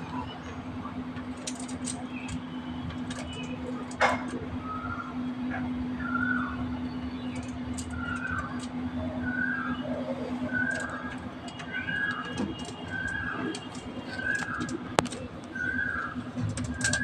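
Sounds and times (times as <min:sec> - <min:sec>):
small clicks: 0:01.2 - 0:04.4, 0:07.2 - 0:08.8, 0:10.5 - 0:17.0.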